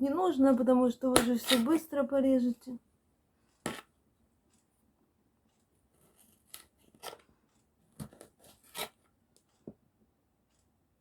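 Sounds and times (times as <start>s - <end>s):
knife cutting on a cutting board: 1.2s - 1.8s, 3.7s - 3.9s, 6.5s - 7.2s, 8.0s - 9.0s.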